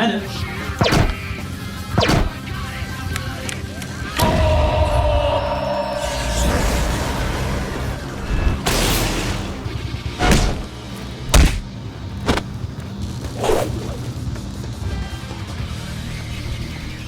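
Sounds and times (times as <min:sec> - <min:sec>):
sharp impact hits: 0:04.2 - 0:10.7, 0:11.3 - 0:11.7
whoosh: 0:04.2 - 0:10.7.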